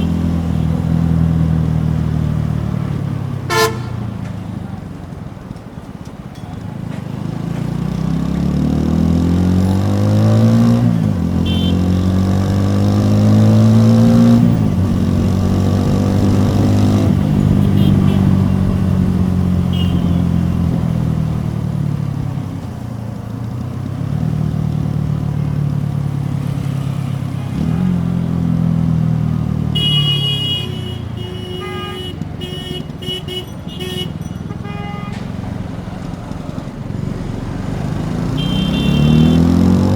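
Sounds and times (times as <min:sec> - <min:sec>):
vehicle horns honking: 0:00.0 - 0:00.8, 0:03.5 - 0:04.2, 0:11.4 - 0:12.1, 0:16.5 - 0:20.9, 0:29.7 - 0:35.6, 0:38.2 - 0:39.6
motorcycle accelerating: 0:00.0 - 0:06.0, 0:06.7 - 0:39.9.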